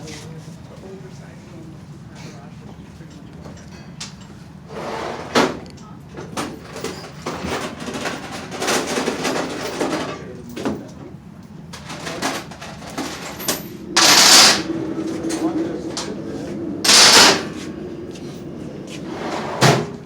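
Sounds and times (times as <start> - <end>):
metal tools knocking and clanking: 11.7 - 16.1, 16.8 - 17.5
loud rushing noise burst: 13.6 - 20.0.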